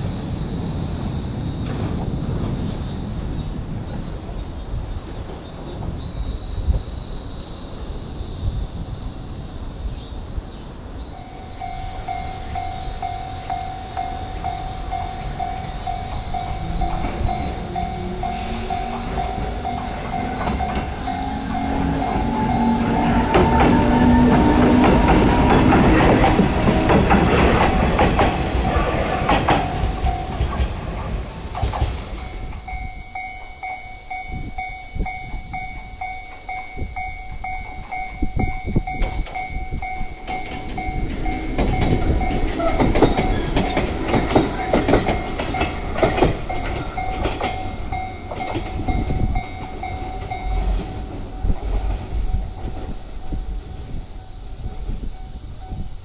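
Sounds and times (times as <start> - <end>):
electric train running past: 0.0 - 56.0
steady whine: 11.1 - 55.8
train wheels clacking over rail joints: 11.2 - 32.8, 37.5 - 53.6.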